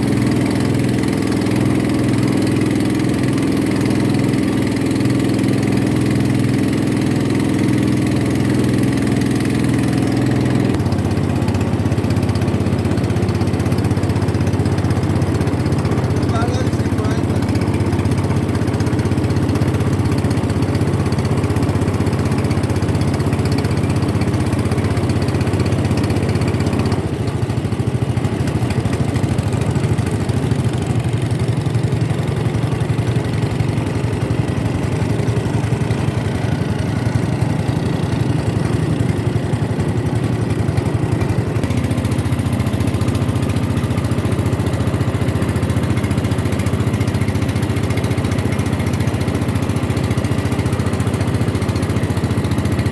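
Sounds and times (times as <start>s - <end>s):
boat engine humming: 0.0s - 52.9s.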